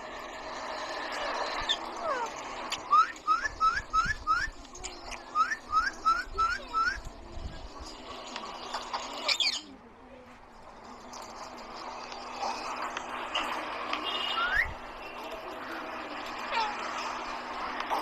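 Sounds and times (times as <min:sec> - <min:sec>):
parrot whistling: 0:01.6 - 0:04.6, 0:05.3 - 0:07.0, 0:14.2 - 0:14.8.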